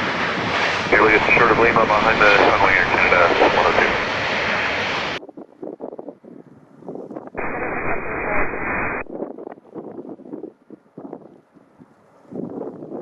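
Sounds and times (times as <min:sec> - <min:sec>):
jet engine noise: 0:00.0 - 0:05.2, 0:07.4 - 0:09.2
radio static: 0:00.9 - 0:04.2, 0:07.4 - 0:09.1
wind buffeting microphone: 0:09.1 - 0:13.0.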